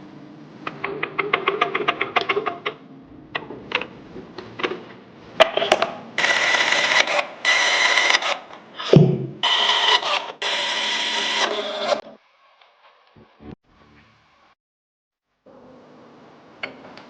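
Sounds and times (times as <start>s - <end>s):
power tool running: 6.2s - 12.0s.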